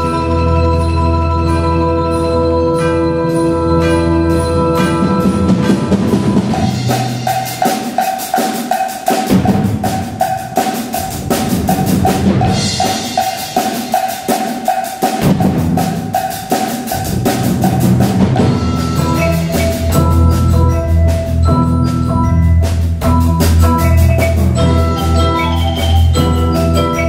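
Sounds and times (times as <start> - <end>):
drums playing: 4.4 - 27.0
wood block: 16.1 - 27.0.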